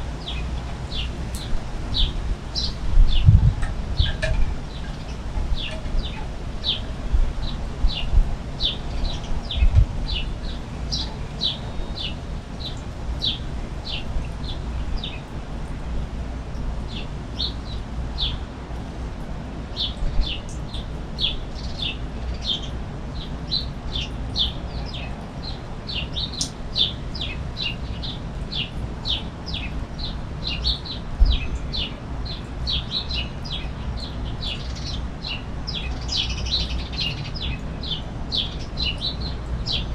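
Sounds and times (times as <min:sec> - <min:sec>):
steady low rumble: 0:00.0 - 0:21.2
small birds chirping: 0:00.2 - 0:15.8, 0:19.8 - 0:39.9.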